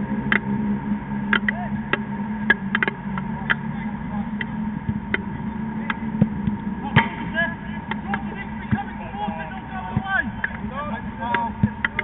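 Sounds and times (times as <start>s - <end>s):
steady hum: 0.0s - 12.0s
ball being kicked: 4.4s - 7.3s, 7.9s - 10.6s, 11.2s - 12.0s
players' feet: 4.4s - 12.0s.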